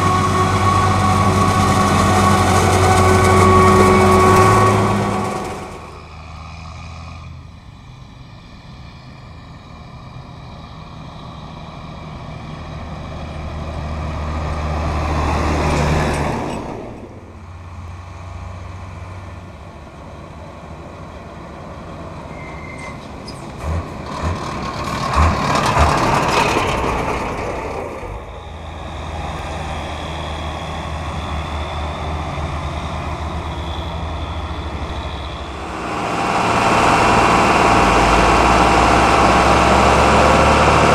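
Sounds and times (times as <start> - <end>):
heavy diesel vehicles driving past: 0.0 - 40.9.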